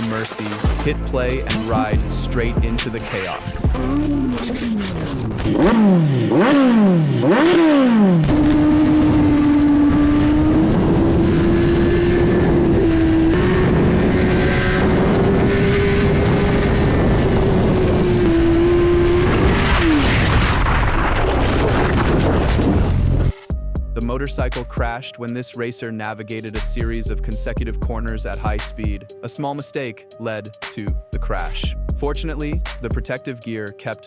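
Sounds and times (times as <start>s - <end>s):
racing motorcycle engine accelerating: 3.7s - 21.6s.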